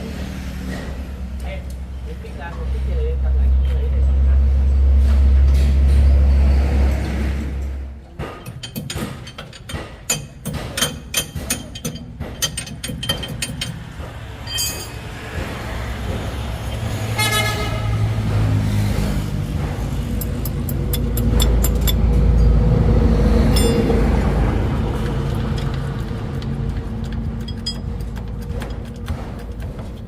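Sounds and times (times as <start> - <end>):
vehicle engine rumble: 0.0 - 30.0
sharp clicks and knocks: 7.6 - 16.9, 18.2 - 22.5, 23.5 - 30.0
car horn toots: 17.2 - 18.1.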